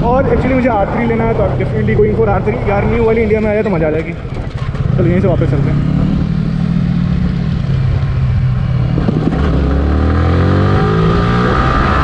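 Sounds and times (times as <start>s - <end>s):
motorcycle engine accelerating: 4.2s - 12.0s.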